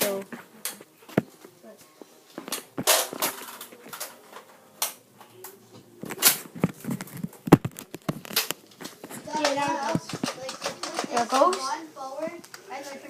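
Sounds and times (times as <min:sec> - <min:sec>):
objects clicking and knocking: 0:02.4 - 0:05.0, 0:06.1 - 0:11.7.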